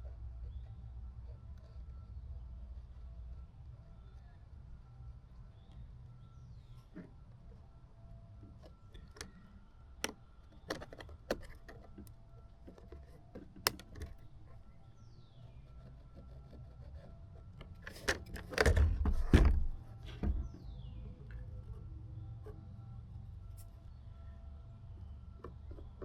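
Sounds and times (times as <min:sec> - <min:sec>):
clattering handling noise: 0:17.6 - 0:20.8.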